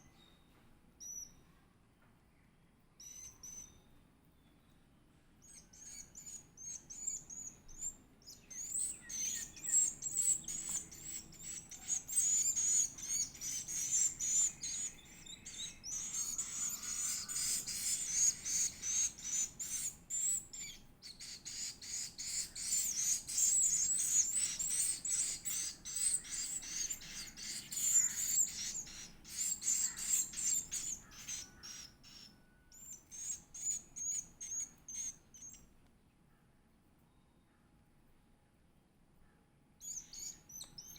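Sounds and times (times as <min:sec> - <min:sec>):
bird chick begging chirps: 0:05.8 - 0:35.6.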